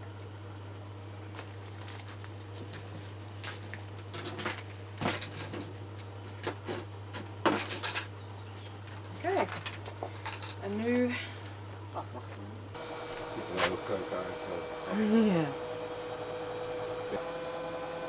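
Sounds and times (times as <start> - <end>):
steady low hum: 8.4 - 18.0.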